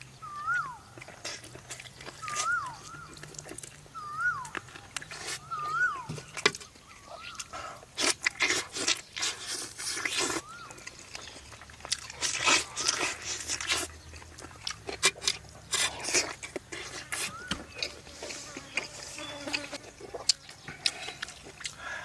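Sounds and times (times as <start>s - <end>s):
crunching and chewing: 0.0s - 22.0s.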